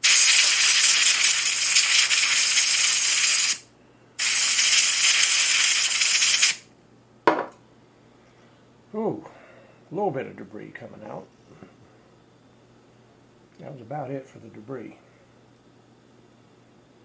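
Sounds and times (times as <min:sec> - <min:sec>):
spray can hissing: 0:00.0 - 0:03.6, 0:04.2 - 0:06.6.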